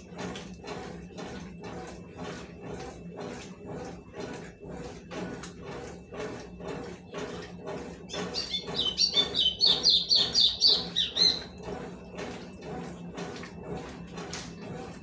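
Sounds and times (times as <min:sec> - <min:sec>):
washing machine swishing: 0:02.2 - 0:15.0
bird chirping rapidly: 0:08.1 - 0:11.5.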